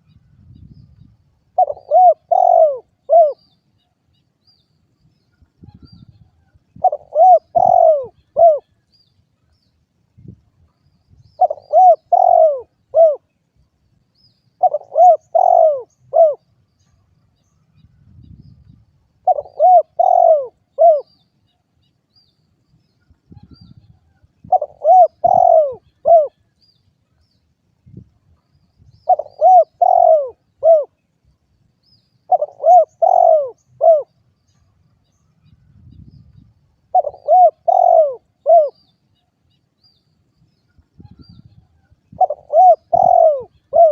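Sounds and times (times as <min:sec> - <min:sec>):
dove cooing: 0:01.5 - 0:03.5, 0:06.8 - 0:08.8, 0:11.4 - 0:13.3, 0:14.6 - 0:16.4, 0:19.2 - 0:21.2, 0:24.4 - 0:26.4, 0:29.0 - 0:31.0, 0:32.3 - 0:34.2, 0:36.9 - 0:38.8, 0:42.1 - 0:43.9.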